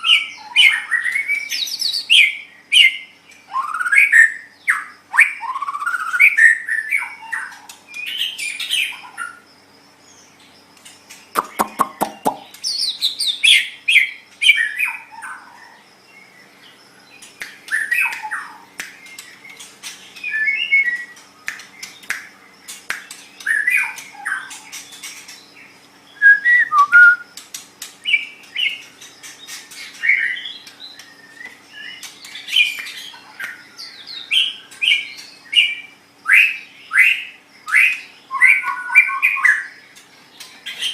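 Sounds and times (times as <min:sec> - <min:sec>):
bird singing fluty whistles: 0:00.0 - 0:09.0, 0:20.2 - 0:21.2, 0:26.1 - 0:27.4
rapid bird rattle: 0:10.8 - 0:12.8, 0:17.2 - 0:20.3, 0:21.1 - 0:25.5, 0:27.3 - 0:31.2
sharp bird clicks: 0:10.8 - 0:13.1, 0:17.2 - 0:25.4, 0:27.3 - 0:35.6.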